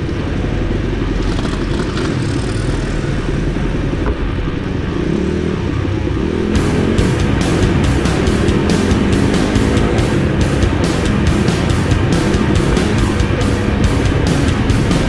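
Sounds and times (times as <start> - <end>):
pit bike engine running: 0.0 - 15.0
music with heavy drum beat: 6.5 - 15.0.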